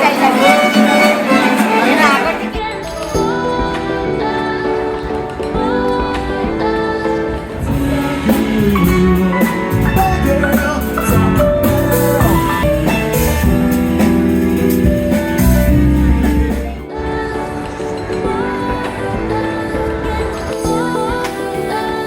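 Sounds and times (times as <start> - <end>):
guitar: 0.0 - 22.0
person singing: 0.0 - 22.0
drum kit: 5.0 - 16.9.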